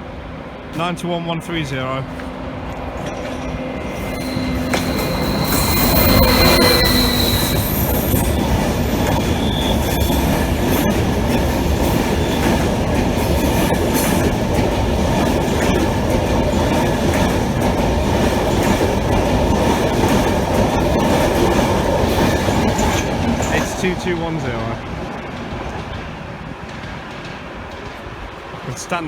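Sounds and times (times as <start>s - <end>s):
train wheels rumbling on rails: 0.0s - 29.0s
high wheel squeal: 3.0s - 10.9s.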